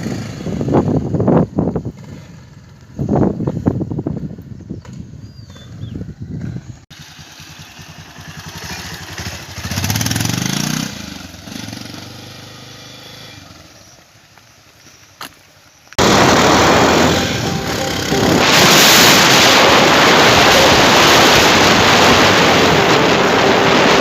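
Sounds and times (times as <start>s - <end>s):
motorcycle engine revving: 6.3s - 14.0s, 16.0s - 24.0s
loud rushing noise: 16.0s - 24.0s.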